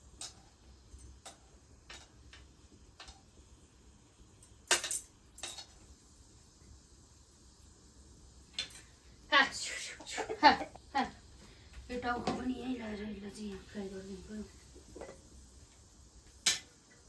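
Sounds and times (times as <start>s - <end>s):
utensils clinking on metal cookware: 4.4s - 5.8s.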